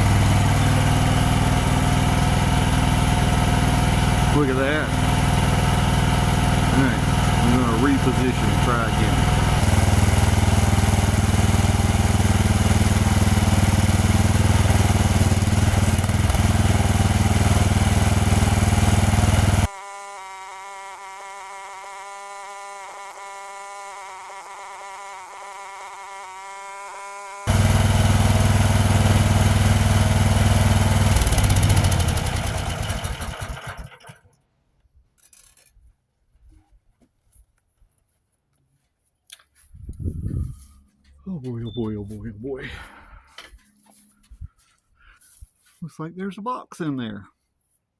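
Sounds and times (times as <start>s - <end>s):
power drill running under load: 0.0s - 34.1s.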